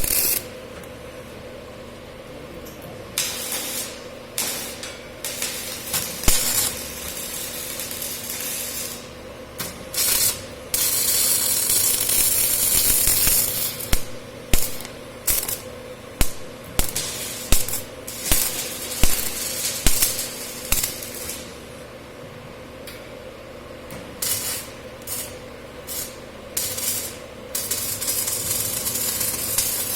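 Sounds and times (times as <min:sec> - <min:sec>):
steady hiss: 0:00.0 - 0:00.6, 0:03.2 - 0:21.9.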